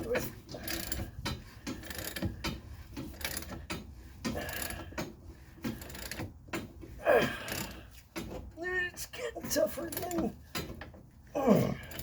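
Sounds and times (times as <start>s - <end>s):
ratchet wrench clicking: 0.6s - 6.3s, 7.4s - 7.8s.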